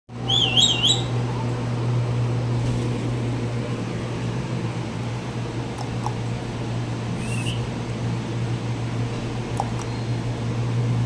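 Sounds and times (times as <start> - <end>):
steady low hum: 0.1 - 11.0
parrot warbling whistle: 0.2 - 1.1, 7.2 - 7.6.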